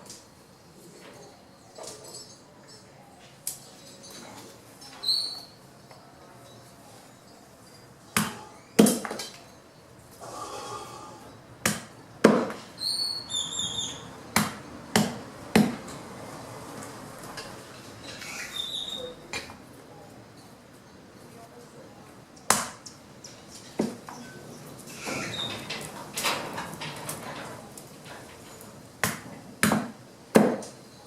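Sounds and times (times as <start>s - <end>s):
sharp chopping strikes on wood: 8.2s - 9.2s, 11.6s - 12.6s, 14.4s - 15.8s, 22.5s - 22.8s, 29.0s - 30.7s.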